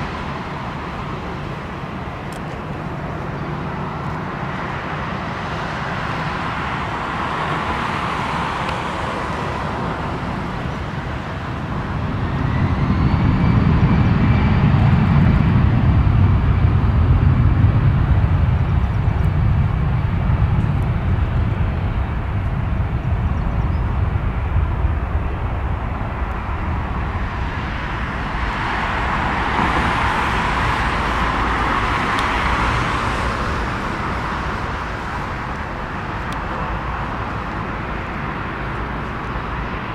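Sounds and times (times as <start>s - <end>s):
jet airliner engine rumble: 0.0s - 39.9s
thin steady engine whine: 0.0s - 39.9s.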